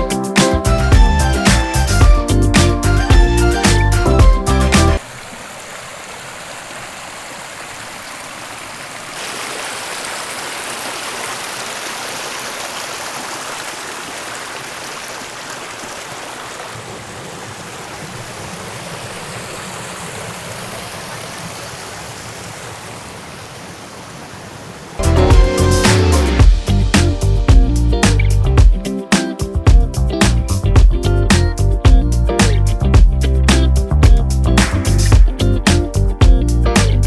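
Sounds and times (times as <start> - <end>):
stream water rushing: 4.8 - 26.6.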